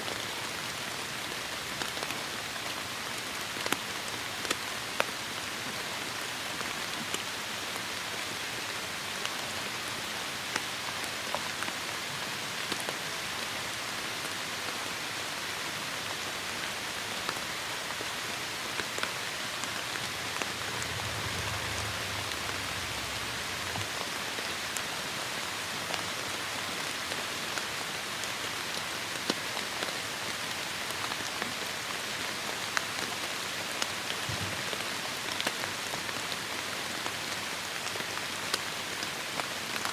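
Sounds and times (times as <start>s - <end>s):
heavy rain falling: 16.3s - 39.9s
low rumble: 19.5s - 24.9s.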